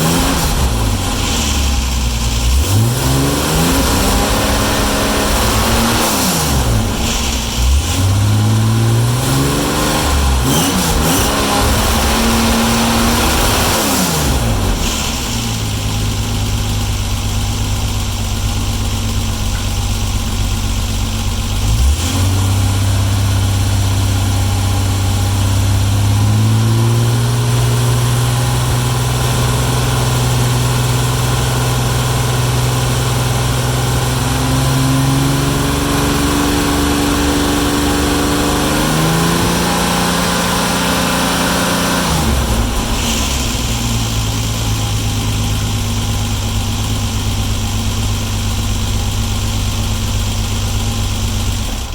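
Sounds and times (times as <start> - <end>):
car engine revving: 0.0 - 51.9.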